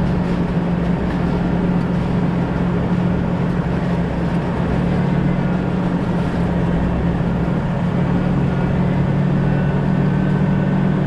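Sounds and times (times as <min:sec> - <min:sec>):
car engine drone: 0:00.0 - 0:11.0
road noise: 0:00.0 - 0:11.0.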